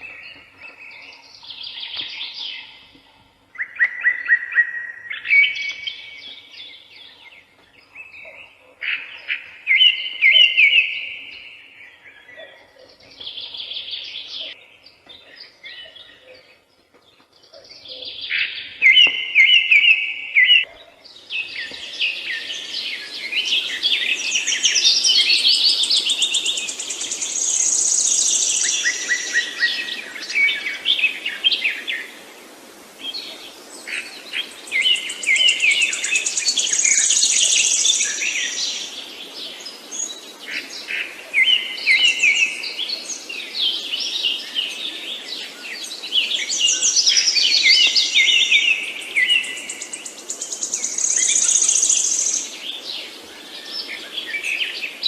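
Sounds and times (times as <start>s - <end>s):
faint background hiss: 0.0s - 55.0s
songbirds chirping and trilling: 0.0s - 55.0s.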